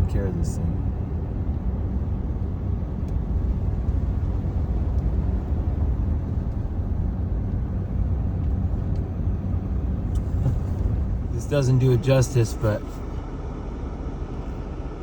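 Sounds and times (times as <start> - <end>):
pickup truck driving through snow: 0.0 - 15.0.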